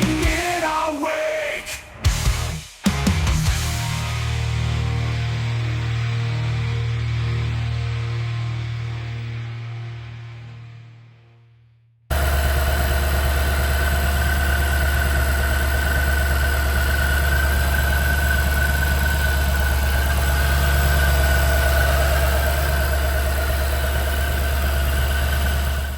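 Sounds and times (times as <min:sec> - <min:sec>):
car engine idling: 0:12.1 - 0:25.9
supercharger whine: 0:12.1 - 0:25.9.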